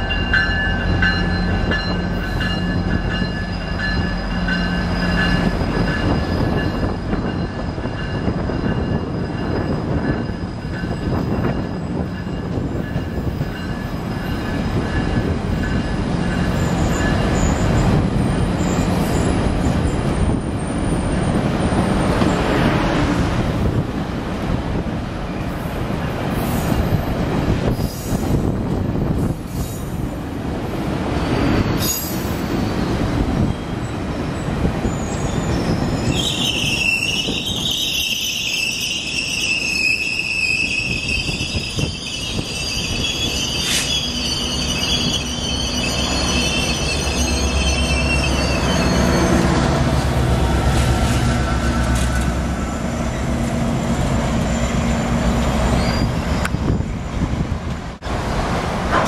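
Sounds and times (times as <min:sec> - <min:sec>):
wheels rumbling on rail: 0:00.0 - 0:59.0
steel wheel squeal: 0:31.2 - 0:33.8, 0:34.8 - 0:49.7, 0:54.1 - 0:57.2.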